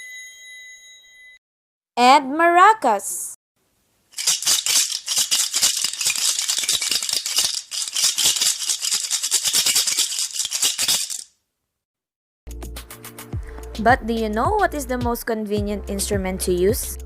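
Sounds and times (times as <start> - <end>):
maracas rattling: 4.2 - 11.3.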